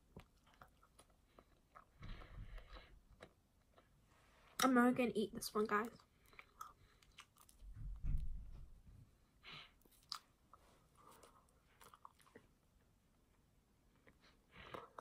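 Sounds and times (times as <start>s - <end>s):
chewing bread: 0.0s - 4.0s, 5.8s - 8.4s, 9.8s - 12.6s.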